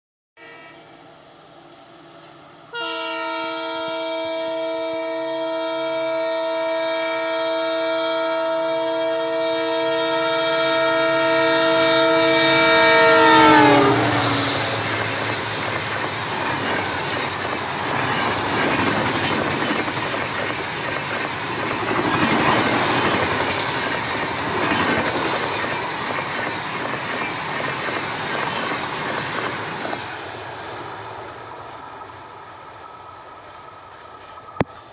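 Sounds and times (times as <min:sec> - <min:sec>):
locomotive horn long blast: 0:00.4 - 0:00.9, 0:02.7 - 0:15.3
train wheels roaring on rail: 0:00.6 - 0:34.9
rhythmic clickety-clack: 0:14.8 - 0:30.0.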